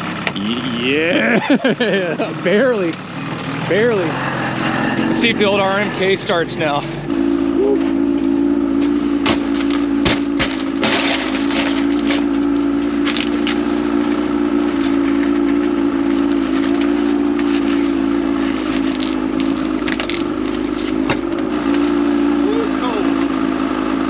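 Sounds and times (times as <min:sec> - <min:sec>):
snowmobile engine idling: 0:00.0 - 0:24.0.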